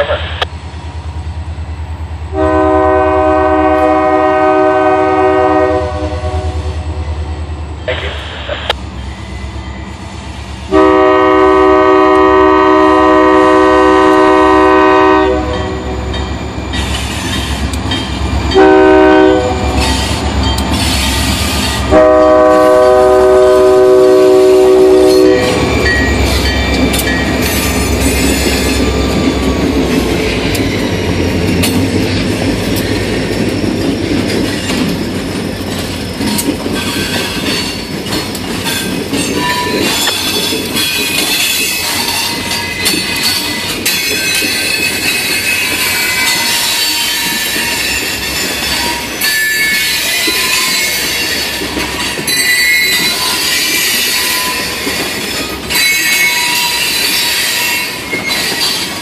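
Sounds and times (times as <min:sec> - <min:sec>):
locomotive air horn chord: 0:02.3 - 0:06.8, 0:10.7 - 0:15.8, 0:18.6 - 0:19.9, 0:21.9 - 0:25.6
wheels squealing: 0:25.0 - 0:59.0
train wheels clattering over rail joints: 0:25.6 - 0:59.0.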